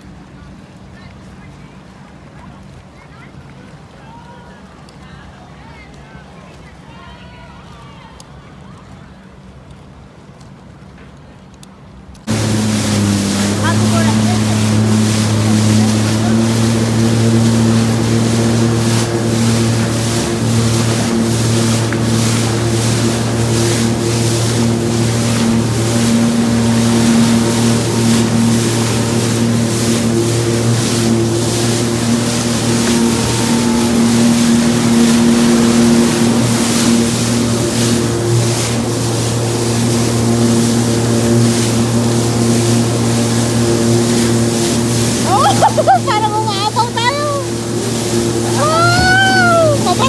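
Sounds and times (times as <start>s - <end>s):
watercraft engine running: 12.2s - 50.0s
wind and water spray hissing: 12.3s - 50.0s.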